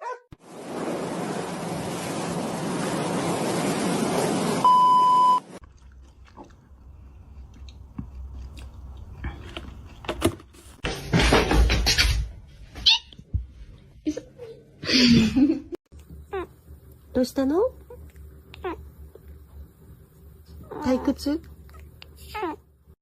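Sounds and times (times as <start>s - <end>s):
faint low hum: 15.4s - 22.9s.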